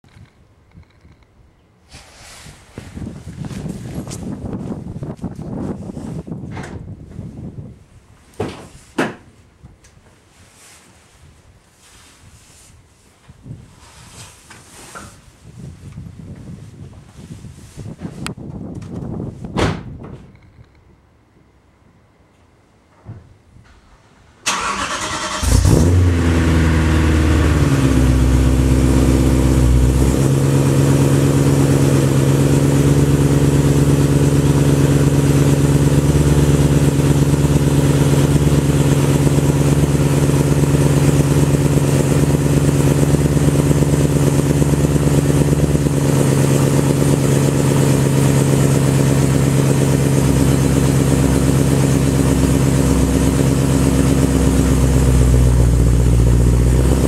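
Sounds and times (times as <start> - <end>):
car engine starting and idling: 24.4 - 57.0.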